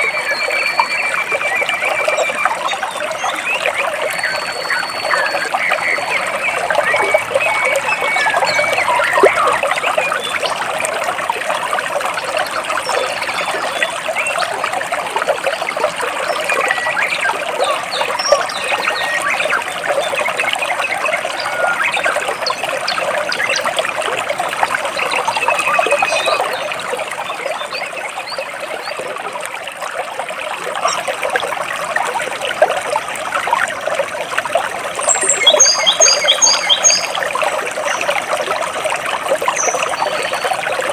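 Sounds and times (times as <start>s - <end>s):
stream water splashing over rocks: 0.0s - 40.9s
bird chirps: 35.0s - 37.2s.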